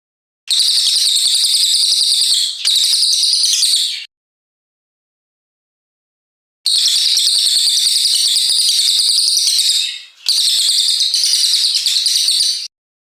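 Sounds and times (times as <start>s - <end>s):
songbird high-pitched chattering song: 0.5s - 4.1s, 6.7s - 12.7s.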